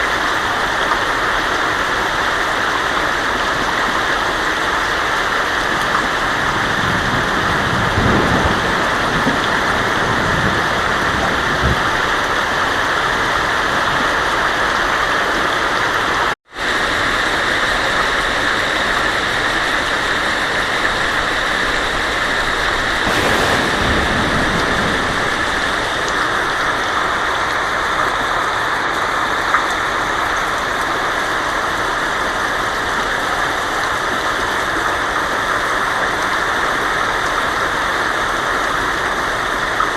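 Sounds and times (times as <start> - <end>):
heavy rain on a tin roof: 0.0 - 39.9
thunder rumbling: 21.6 - 28.0.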